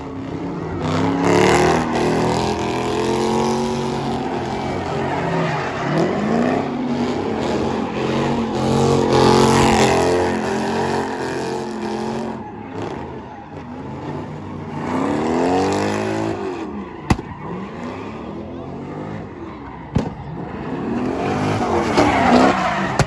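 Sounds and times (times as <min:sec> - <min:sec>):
car engine revving: 0:00.0 - 0:23.0
sharp crack: 0:17.1 - 0:17.3.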